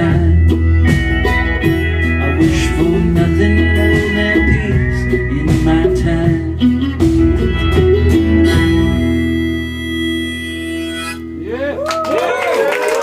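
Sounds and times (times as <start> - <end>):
drums: 0.0 - 9.6
live rock band playing: 0.0 - 11.8
guitar chord ringing: 6.8 - 11.7.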